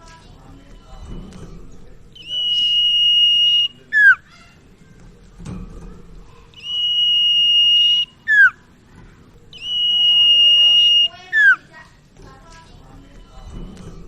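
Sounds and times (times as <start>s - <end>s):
bird whistle call: 2.2s - 4.2s, 6.6s - 8.6s, 9.6s - 11.6s.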